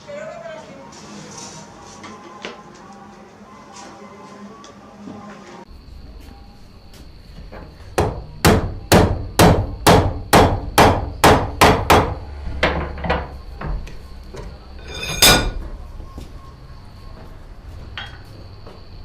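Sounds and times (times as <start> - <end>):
hammer striking steel on anvil: 14.8 - 15.6
ringing anvil clang: 14.8 - 15.6.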